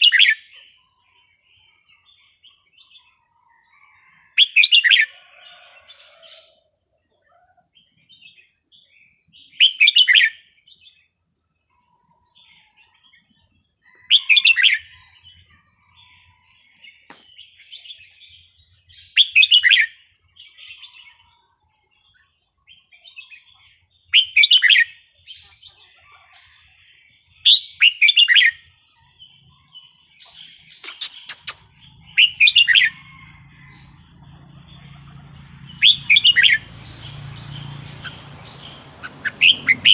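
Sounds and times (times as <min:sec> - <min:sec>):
soft bird chirps: 0:07.1 - 0:39.9
bird singing warbled phrases: 0:13.9 - 0:39.9.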